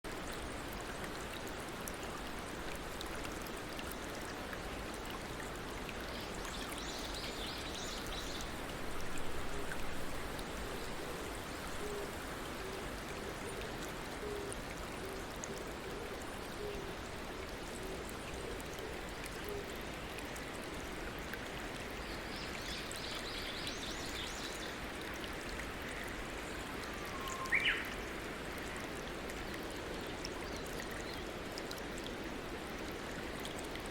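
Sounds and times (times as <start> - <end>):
water flowing over stones: 0.1 - 33.9.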